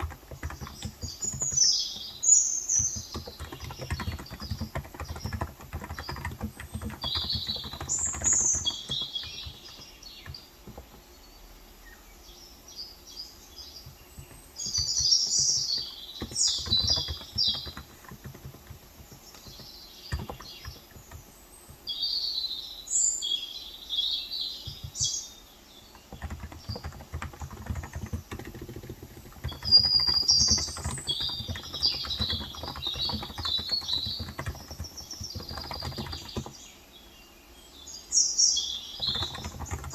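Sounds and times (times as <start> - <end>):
soft keyboard typing: 0.0 - 11.1, 13.7 - 21.9, 24.6 - 25.2, 25.9 - 36.7, 39.0 - 39.9
birds chirping: 0.0 - 39.9.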